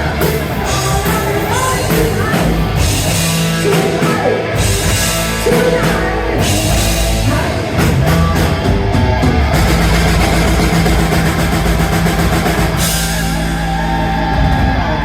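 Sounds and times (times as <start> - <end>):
distorted guitar and bass chord: 0.0 - 15.0
drums and cymbals: 0.0 - 15.0
live rock band: 0.0 - 15.0.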